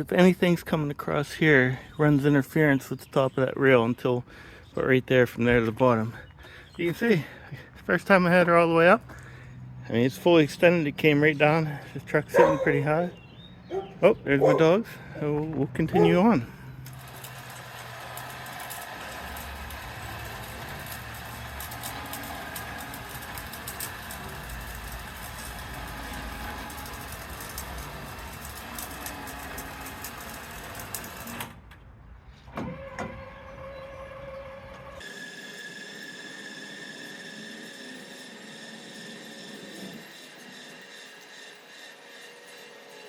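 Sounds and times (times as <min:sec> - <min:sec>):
motor running: 0:16.0 - 0:31.5.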